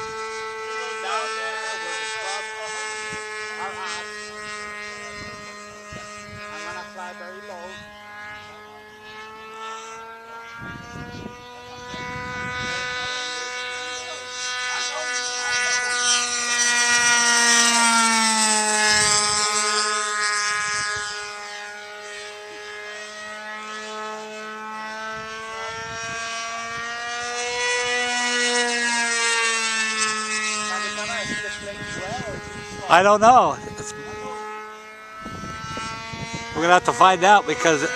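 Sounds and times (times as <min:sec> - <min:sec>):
model airplane motor whining: 0:00.0 - 0:37.9.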